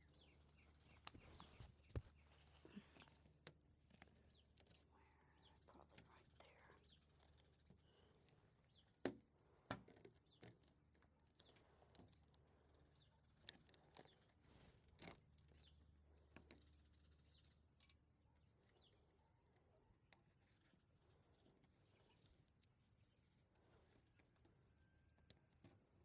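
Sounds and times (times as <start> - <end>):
faint bird chirps: 0.0 - 3.2, 4.0 - 9.0, 15.4 - 25.5.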